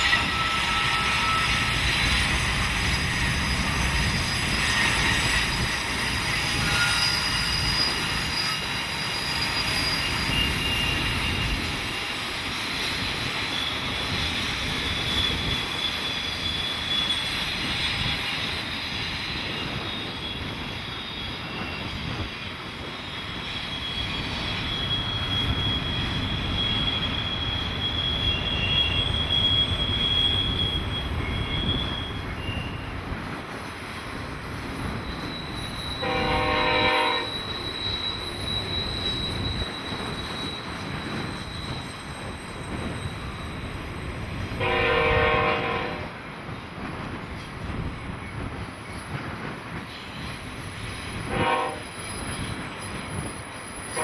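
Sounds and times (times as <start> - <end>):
train rumbling by: 0.0 - 54.0
train wheels squealing: 0.0 - 54.0
train horn blasts: 36.0 - 37.4, 44.6 - 46.1, 51.3 - 51.9.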